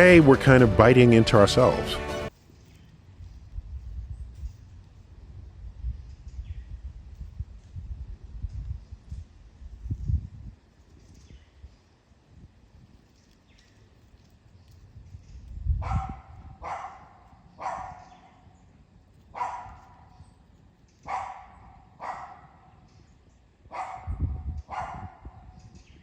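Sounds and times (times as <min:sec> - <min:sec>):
dog barking: 0:15.8 - 0:18.4, 0:19.3 - 0:20.1, 0:21.0 - 0:22.7, 0:23.7 - 0:25.5.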